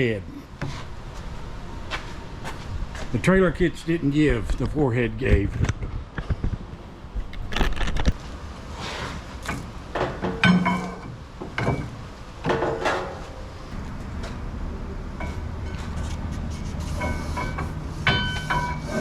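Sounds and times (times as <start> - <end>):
steady low rumble: 13.6 - 19.0.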